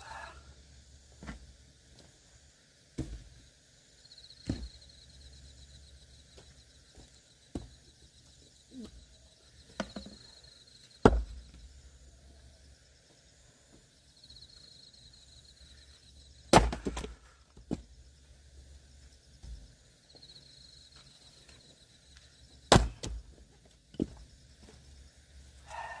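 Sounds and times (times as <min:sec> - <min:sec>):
axe chopping firewood: 0:03.0 - 0:03.3, 0:11.0 - 0:11.4, 0:16.5 - 0:17.8, 0:22.7 - 0:23.4.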